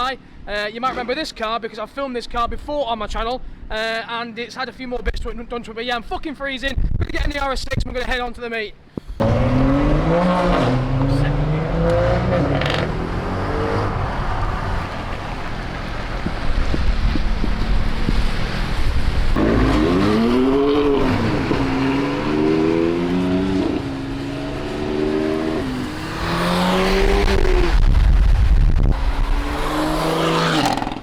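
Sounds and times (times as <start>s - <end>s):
car engine accelerating hard: 9.2s - 31.0s.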